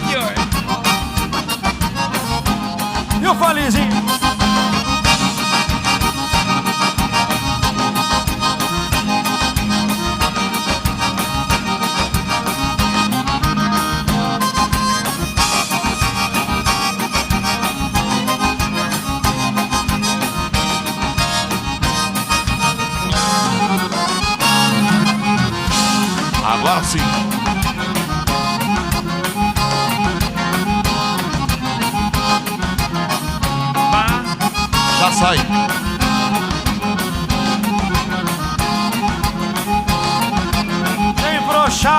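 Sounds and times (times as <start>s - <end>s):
accordion led dance band: 0.0s - 41.9s
bass and percussion beat: 0.0s - 41.9s.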